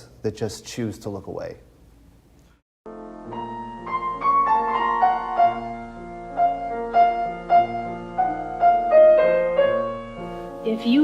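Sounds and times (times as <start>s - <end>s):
slow piano music: 2.9s - 11.0s.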